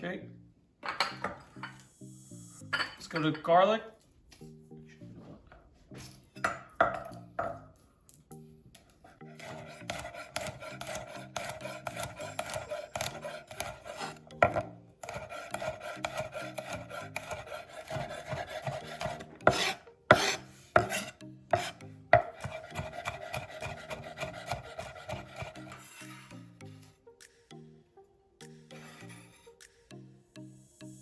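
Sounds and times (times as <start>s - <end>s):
knife rasping through garlic: 9.3s - 14.2s, 15.0s - 26.1s.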